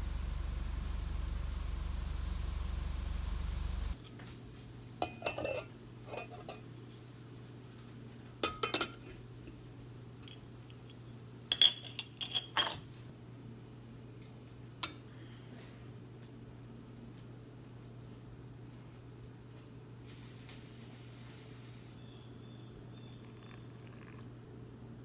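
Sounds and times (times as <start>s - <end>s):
kitchenware clinking and clattering: 5.0s - 6.7s, 8.4s - 9.6s, 10.2s - 13.0s.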